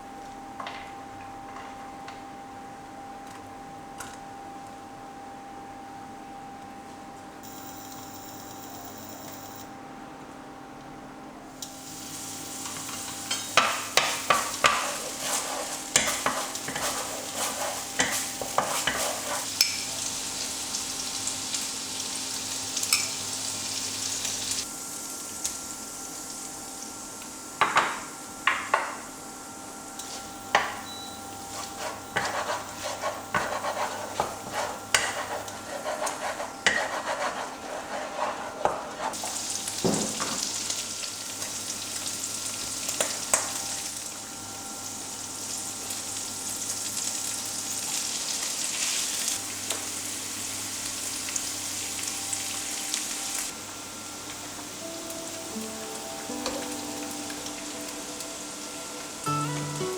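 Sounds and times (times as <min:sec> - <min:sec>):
food sizzling in oil: 0:11.6 - 0:59.9
spatula scraping pan: 0:13.6 - 0:19.5, 0:31.5 - 0:39.4.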